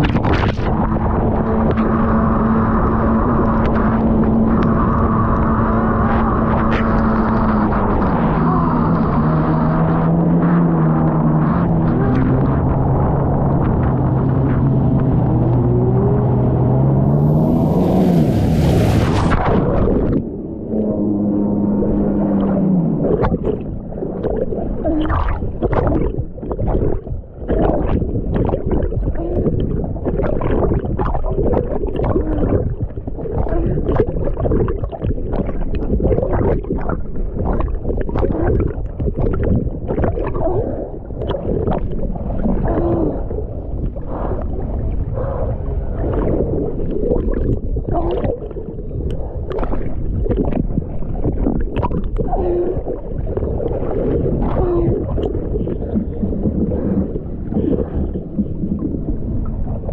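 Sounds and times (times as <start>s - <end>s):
hull slapping water: 0.0s - 59.9s
jet ski engine running: 0.7s - 23.1s
water spray rushing: 16.9s - 19.9s.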